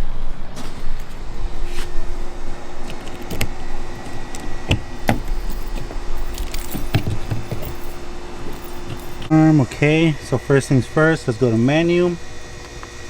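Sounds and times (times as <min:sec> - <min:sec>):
steady low hum: 0:00.0 - 0:13.0
metal hardware clinking: 0:01.2 - 0:09.4.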